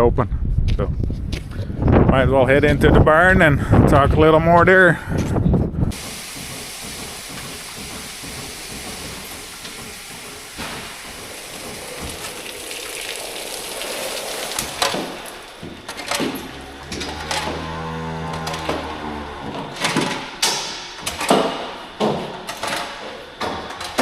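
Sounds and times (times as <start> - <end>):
wind on microphone: 0.0 - 6.0
steady low hum: 0.4 - 22.5
knocks: 5.9 - 12.6.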